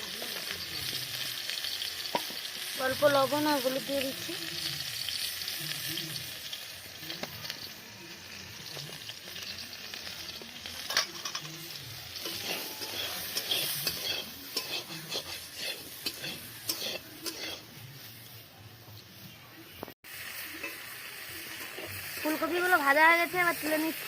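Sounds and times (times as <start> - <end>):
vegetables sizzling in oil: 0.0 - 24.0
spoon clicking and scraping pan: 12.2 - 17.6.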